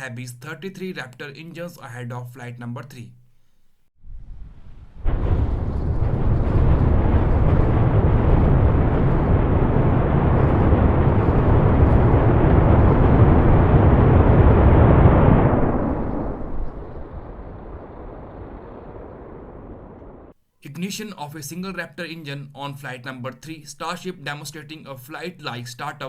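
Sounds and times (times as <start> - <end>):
rocket engines firing: 4.5 - 20.3.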